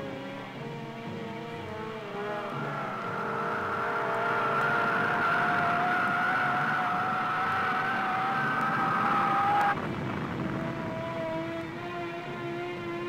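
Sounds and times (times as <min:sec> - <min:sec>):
broad rushing roar: 0:00.0 - 0:13.0
high engine whine: 0:00.0 - 0:13.0.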